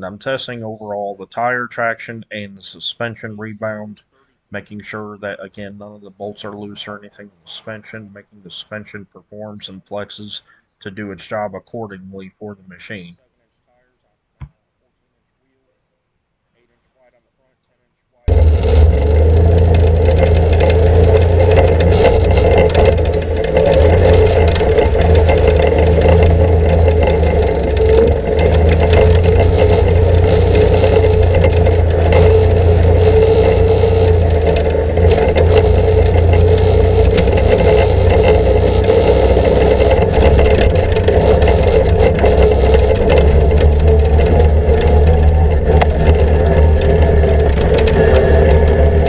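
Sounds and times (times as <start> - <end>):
atv engine running: 18.3 - 49.0
chassis knocks and rattles: 18.3 - 49.0.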